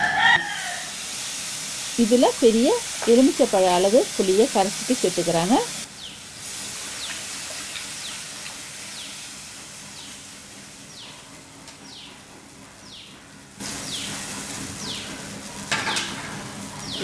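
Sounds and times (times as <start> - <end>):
faint steady hiss: 0.7 - 11.0.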